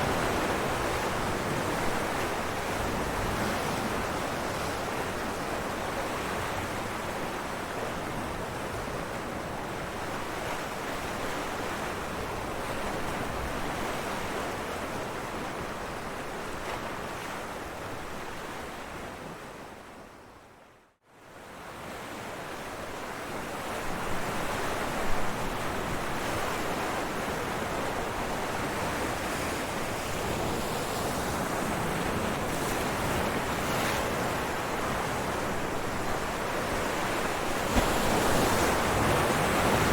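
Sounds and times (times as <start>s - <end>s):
ocean waves crashing on rocks: 30.2s - 39.9s.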